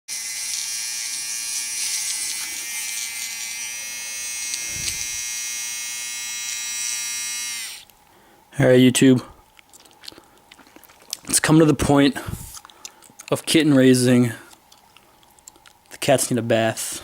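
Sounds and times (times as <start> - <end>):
high-pitched electric motor whine: 0.1 - 7.9.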